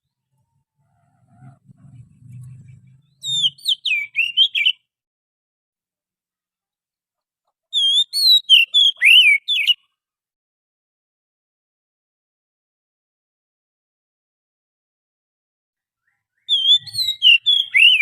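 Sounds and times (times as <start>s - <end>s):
bird singing whistled notes: 1.8s - 4.9s, 7.7s - 9.8s, 16.0s - 18.0s.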